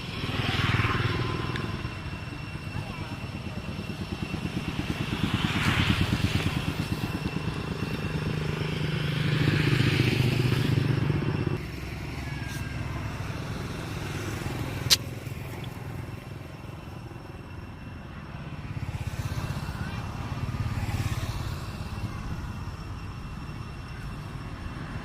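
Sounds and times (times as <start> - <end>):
small engine running: 0.0 - 25.0
sharp click: 14.9 - 15.8.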